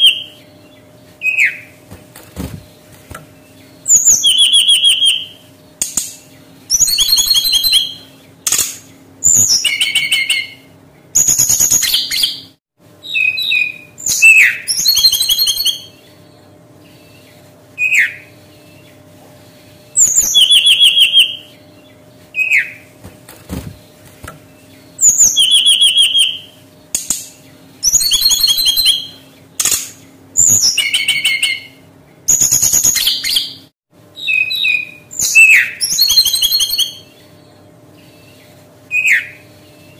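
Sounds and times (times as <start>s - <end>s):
down-slurred bird whistles: 0.0s - 0.4s, 3.8s - 5.4s, 6.7s - 8.2s, 9.2s - 16.0s, 17.8s - 18.7s, 20.0s - 21.6s, 24.9s - 26.6s, 27.8s - 29.2s, 30.4s - 37.2s, 38.0s - 39.9s
bird warbling song: 0.0s - 39.9s.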